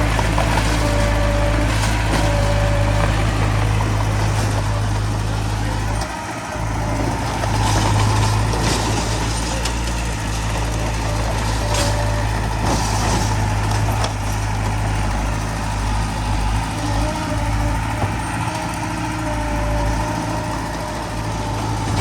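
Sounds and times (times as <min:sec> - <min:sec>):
heavy diesel machinery droning: 0:00.0 - 0:22.0
metal clanks and rattles: 0:00.1 - 0:15.3, 0:19.9 - 0:22.0.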